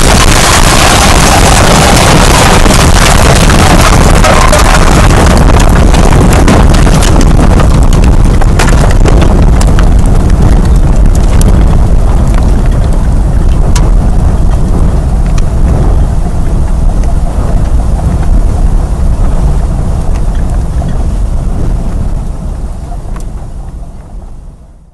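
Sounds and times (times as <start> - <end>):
debris clicks and knocks: 0.0 - 11.6
wind blasting the microphone: 0.0 - 24.9.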